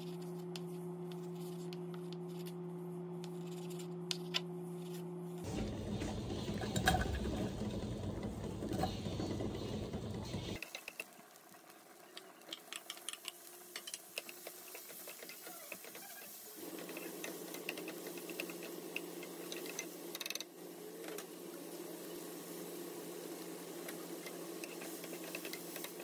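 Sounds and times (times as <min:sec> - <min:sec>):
steady low hum: 0:00.0 - 0:10.6
onion and bacon frying: 0:05.4 - 0:26.0.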